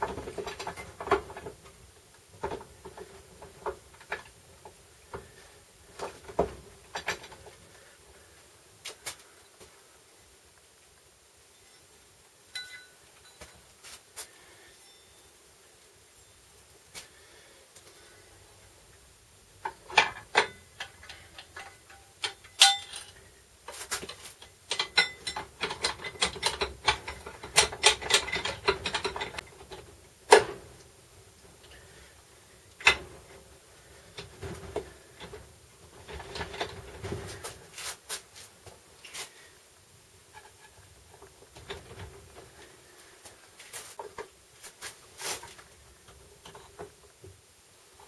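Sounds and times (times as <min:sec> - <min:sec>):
metal parts and tools clattering: 0:19.9 - 0:30.6.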